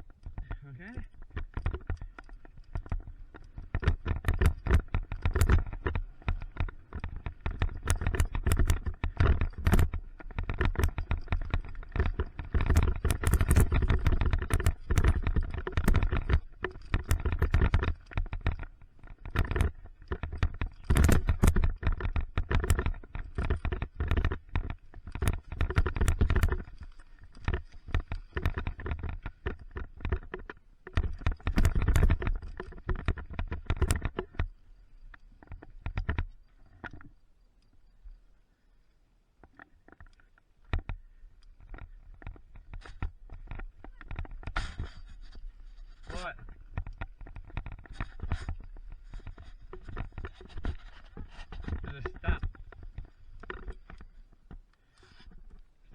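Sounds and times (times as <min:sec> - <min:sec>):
bike chain and frame rattling: 0:00.0 - 0:37.1, 0:39.5 - 0:55.6
wind on camera: 0:00.0 - 0:37.1
tyres rumbling on dirt: 0:00.3 - 0:34.5.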